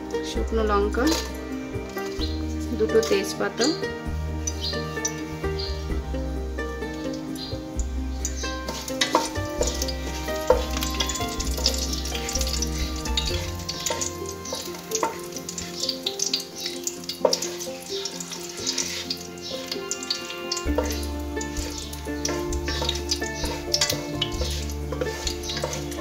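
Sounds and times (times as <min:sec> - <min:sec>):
background music with held notes: 0:00.0 - 0:26.0
spices sizzling in oil: 0:00.0 - 0:26.0
wooden spatula knocking pan: 0:08.5 - 0:15.4, 0:20.7 - 0:26.0.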